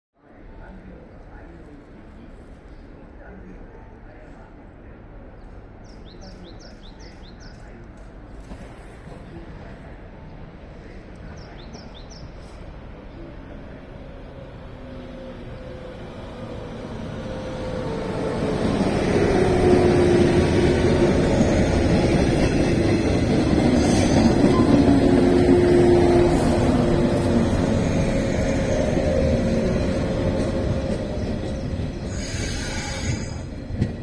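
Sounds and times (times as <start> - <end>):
electric train wheels rumbling: 12.4 - 34.0.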